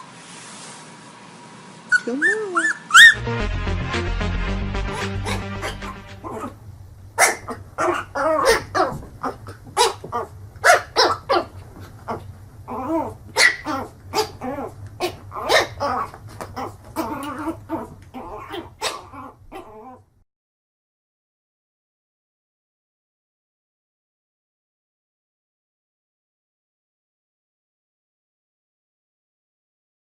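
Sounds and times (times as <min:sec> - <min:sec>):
dog barking and yelping: 0:01.9 - 0:03.2, 0:04.9 - 0:06.6, 0:07.2 - 0:20.0.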